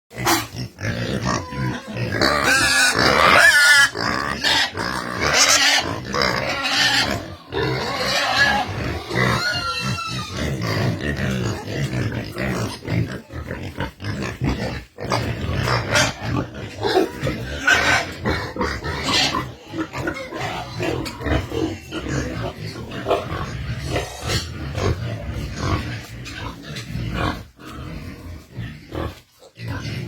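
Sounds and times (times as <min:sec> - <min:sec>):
pigs grunting: 0:00.1 - 0:30.0
pigs squealing: 0:00.1 - 0:30.0.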